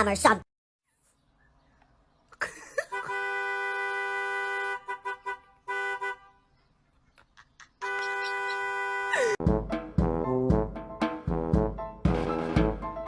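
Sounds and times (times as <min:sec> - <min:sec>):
two-note horn honking: 0:07.8 - 0:09.4.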